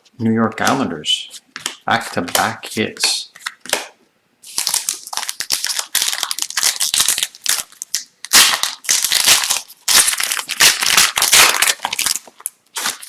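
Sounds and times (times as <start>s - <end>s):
cards rustling and clicking: 1.6s - 3.9s, 4.5s - 8.1s
foil wrapper crinkling and tearing: 4.4s - 13.0s.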